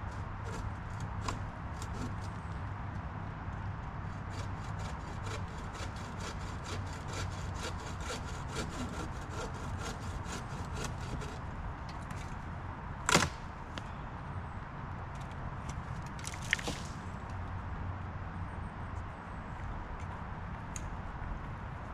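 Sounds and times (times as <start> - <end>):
hand saw cutting wood: 0.4 - 2.3, 4.1 - 11.4.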